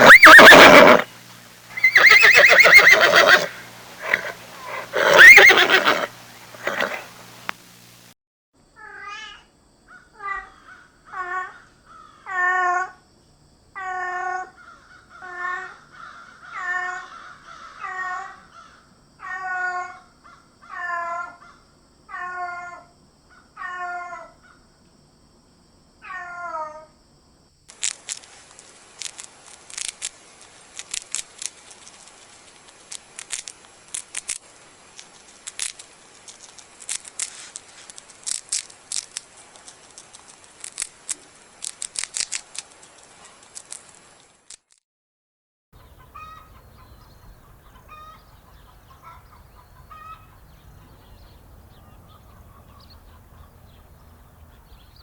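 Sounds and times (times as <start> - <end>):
animal harsh calls: 0.0 - 1.1, 1.7 - 7.3
faint hiss: 0.0 - 8.2, 26.9 - 44.5.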